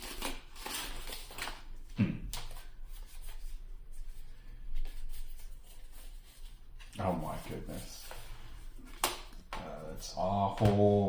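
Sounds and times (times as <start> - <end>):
trading cards rustling and sliding: 0.0 - 1.6, 2.3 - 9.5.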